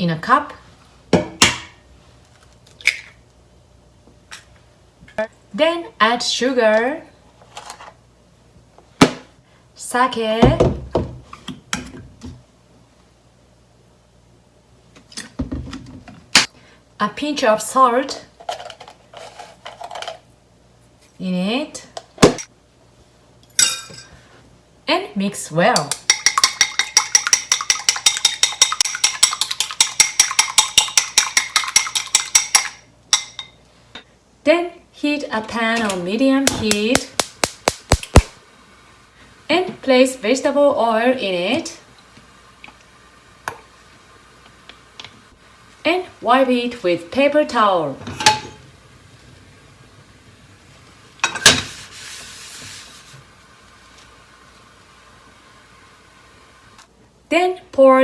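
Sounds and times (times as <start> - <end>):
paper towel rubbing in pan: 51.6 - 53.3.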